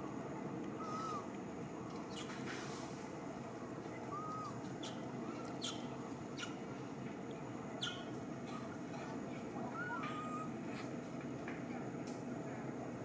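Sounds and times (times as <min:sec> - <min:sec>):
steady background noise: 0:00.0 - 0:13.0
arched bird whistle: 0:04.1 - 0:05.0, 0:07.8 - 0:08.1
sharp high bird chirps: 0:05.6 - 0:06.6, 0:07.8 - 0:08.1.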